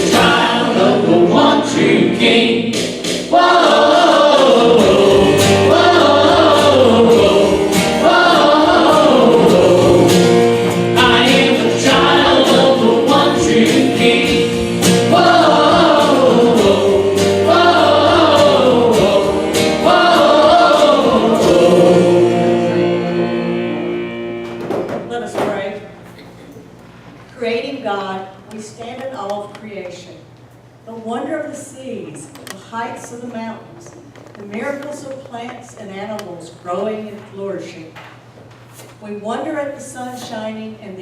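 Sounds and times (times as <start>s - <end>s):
choir singing a hymn: 0.0s - 24.4s.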